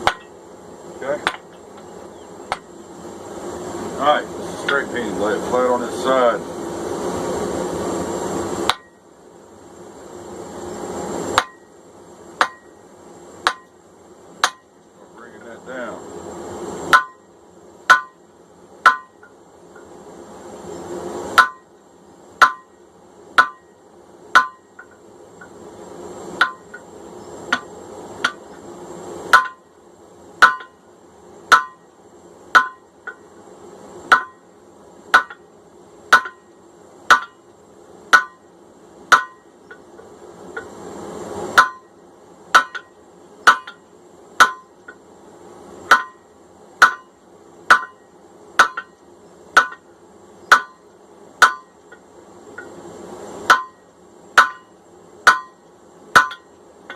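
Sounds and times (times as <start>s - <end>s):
hammer striking metal on anvil: 0.0s - 0.4s, 1.2s - 1.5s, 8.7s - 9.0s, 11.4s - 11.7s, 12.4s - 12.8s, 13.4s - 13.8s, 14.4s - 14.7s, 16.9s - 17.3s, 17.9s - 18.2s, 18.8s - 19.3s, 21.4s - 21.7s, 22.4s - 22.8s, 23.4s - 23.7s, 24.3s - 25.5s, 26.4s - 26.8s, 29.3s - 29.6s, 30.4s - 30.8s, 31.5s - 31.9s, 32.5s - 33.2s, 34.1s - 34.4s, 35.1s - 35.4s, 36.1s - 36.5s, 37.1s - 37.4s, 38.1s - 38.5s, 39.1s - 39.5s, 41.6s - 41.9s, 42.5s - 43.8s, 44.4s - 44.8s, 45.9s - 49.8s, 50.5s - 51.9s, 53.5s - 56.9s
steady low rush: 0.0s - 56.9s.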